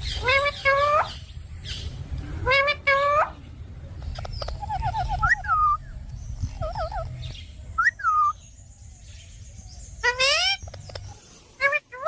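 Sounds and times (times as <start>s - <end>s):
parrot squawking: 0.0s - 1.2s, 2.4s - 3.4s, 4.1s - 5.8s, 6.6s - 7.1s, 10.0s - 11.0s, 11.6s - 12.0s
parrot chirping: 0.0s - 3.4s, 4.0s - 8.4s, 9.8s - 12.0s.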